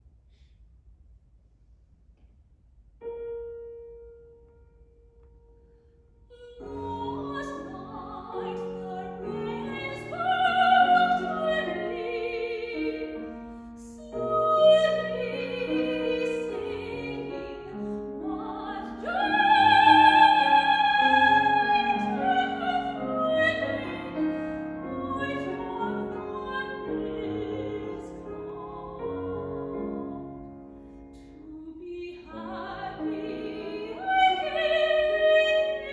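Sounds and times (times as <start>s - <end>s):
piano accompaniment: 3.0s - 35.9s
operatic high voice singing: 6.5s - 30.4s, 31.5s - 35.9s.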